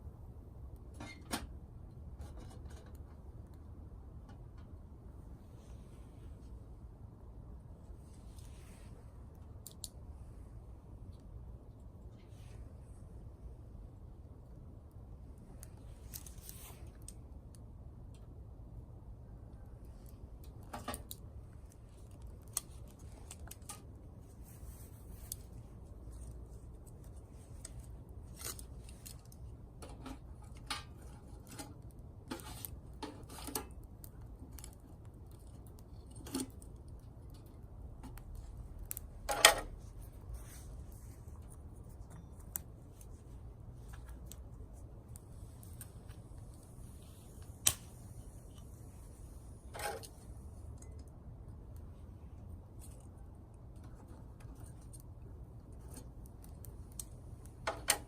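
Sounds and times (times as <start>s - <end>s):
twigs snapping and crackling in fire: 8.0s - 10.1s, 14.4s - 18.4s, 19.4s - 58.0s.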